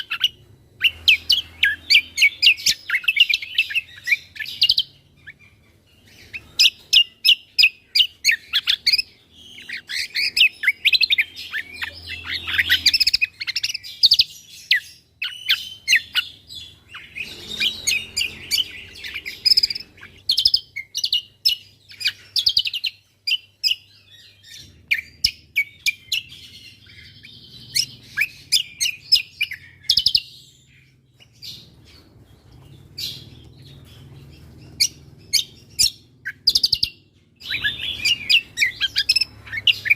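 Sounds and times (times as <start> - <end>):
songbird chirps and trills: 0.0 - 39.9.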